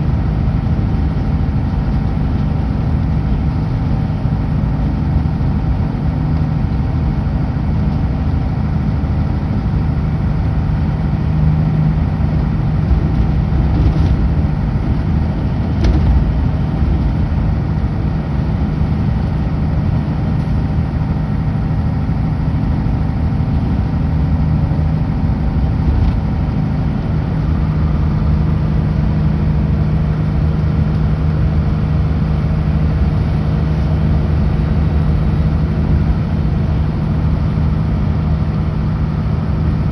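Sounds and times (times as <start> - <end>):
truck diesel engine running: 0.0 - 39.9
tyre and road noise: 10.5 - 39.8.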